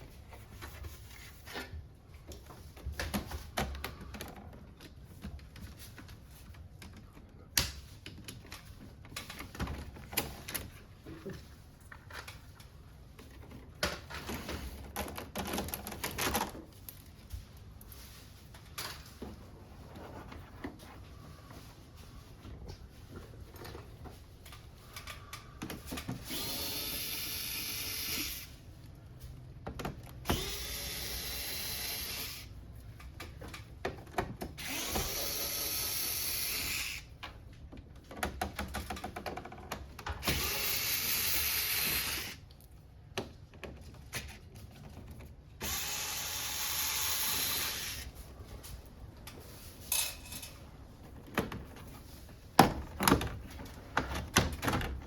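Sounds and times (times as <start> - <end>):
electric screwdriver whining: 26.2 - 28.5, 30.2 - 32.5, 34.6 - 37.1, 40.2 - 42.4, 45.6 - 48.1.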